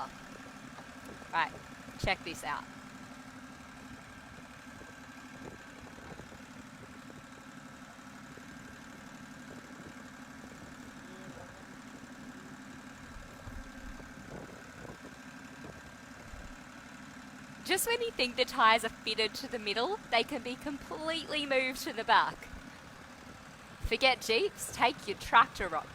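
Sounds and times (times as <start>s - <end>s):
tractor engine idling: 0.0s - 25.9s.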